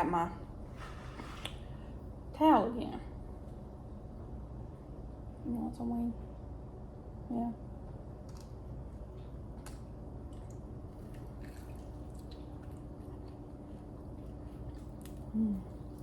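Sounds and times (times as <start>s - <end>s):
low hum: 0.0s - 16.0s
wet chewing: 9.2s - 16.0s.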